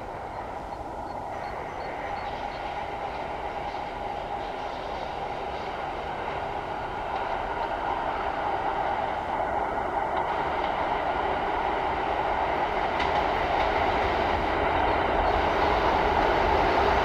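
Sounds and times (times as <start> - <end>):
electric locomotive hauling train: 0.0 - 17.0.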